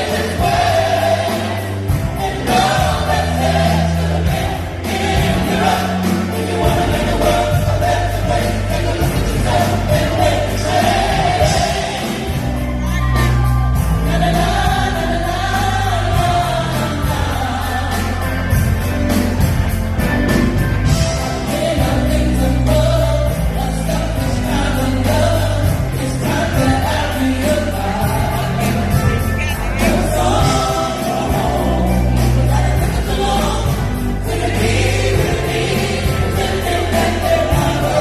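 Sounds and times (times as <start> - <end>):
choir singing: 0.0 - 19.6, 20.3 - 38.0
drum beat: 0.0 - 23.6, 25.7 - 38.0
bass notes: 0.0 - 38.0.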